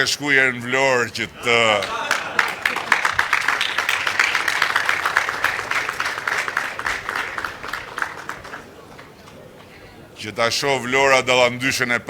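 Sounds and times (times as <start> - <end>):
audience applauding: 1.4 - 10.1.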